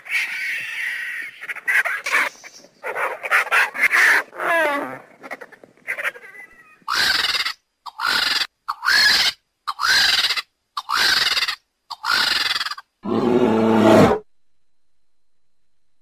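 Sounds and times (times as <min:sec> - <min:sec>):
eagle yelping calls: 0:00.0 - 0:12.9
eagle growling call: 0:13.0 - 0:14.2.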